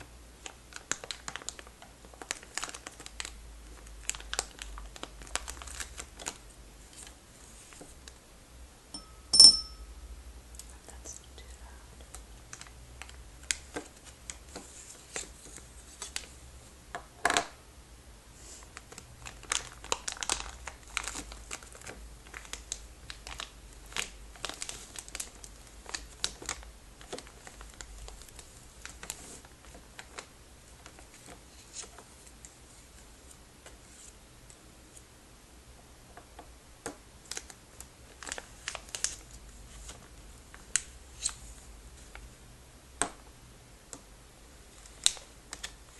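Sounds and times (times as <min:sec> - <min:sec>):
plastic bag crinkling: 0:00.7 - 0:06.4, 0:18.8 - 0:31.9.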